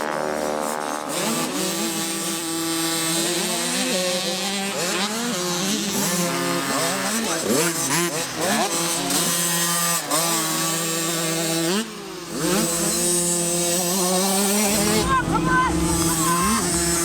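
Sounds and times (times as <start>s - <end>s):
motocross bikes revving: 0.4s - 17.0s.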